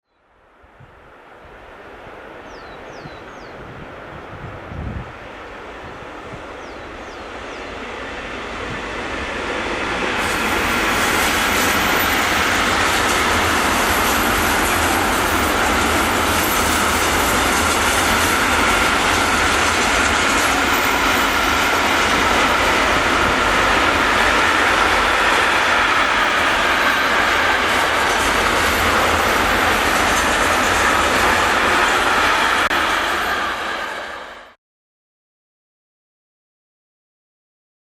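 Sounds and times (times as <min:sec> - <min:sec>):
train passing: 0:00.4 - 0:34.6
train wheels clattering: 0:08.8 - 0:34.2.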